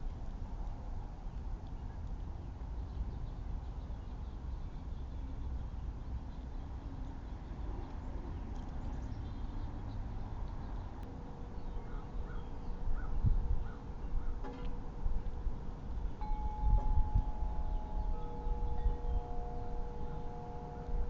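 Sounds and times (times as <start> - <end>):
low outdoor rumble: 8.0 - 21.0.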